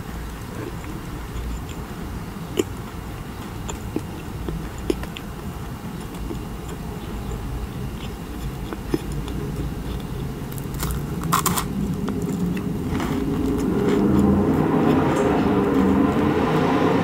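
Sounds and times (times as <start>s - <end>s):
soft chewing: 0.0s - 16.9s.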